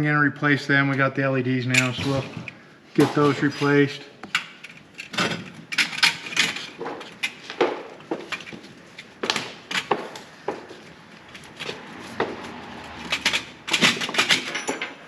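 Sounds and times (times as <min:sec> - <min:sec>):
hard objects clinking and knocking: 0:11.4 - 0:15.0.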